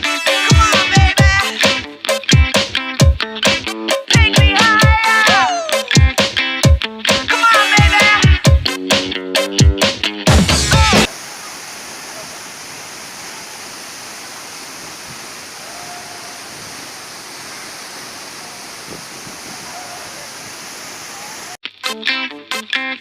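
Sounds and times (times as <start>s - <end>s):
waterfall roaring: 11.1s - 21.6s.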